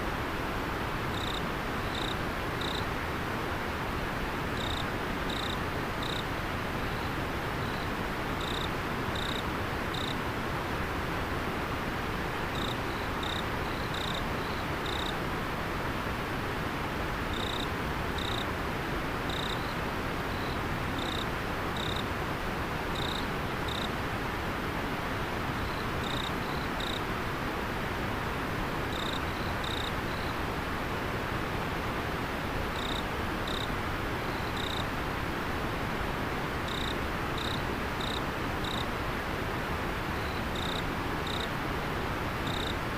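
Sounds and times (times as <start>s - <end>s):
river water flowing: 0.0s - 42.9s
insect chirping: 1.1s - 2.9s, 4.6s - 6.2s, 6.8s - 10.2s, 12.6s - 15.2s, 17.3s - 18.5s, 19.3s - 22.0s, 23.0s - 23.9s, 25.6s - 27.0s, 28.9s - 30.3s, 32.8s - 33.7s, 34.3s - 34.9s, 36.7s - 38.9s, 40.2s - 41.5s, 42.4s - 42.8s.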